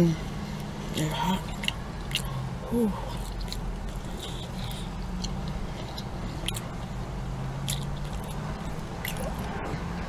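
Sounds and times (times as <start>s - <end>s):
low hum in a car: 0.0s - 10.0s
person chewing food: 0.5s - 7.0s, 7.6s - 9.6s
wet mouth clicks: 7.6s - 9.5s.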